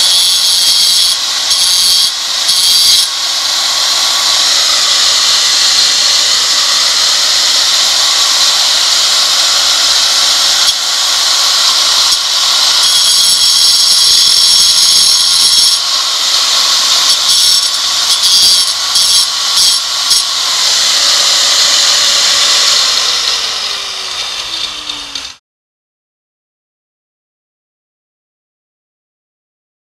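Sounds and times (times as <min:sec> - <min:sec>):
angle grinder cutting stone: 0:00.0 - 0:25.4.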